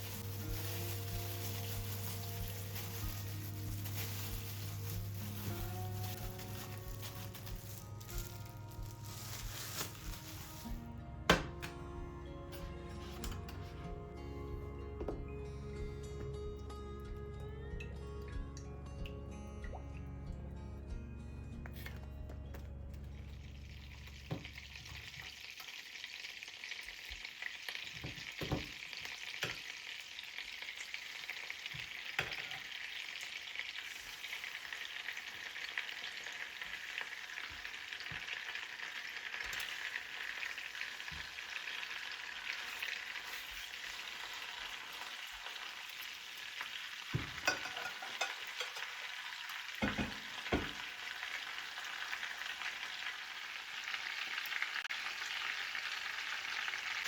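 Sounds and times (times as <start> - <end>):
food sizzling in a frying pan: 0.0 - 10.8, 23.3 - 57.0.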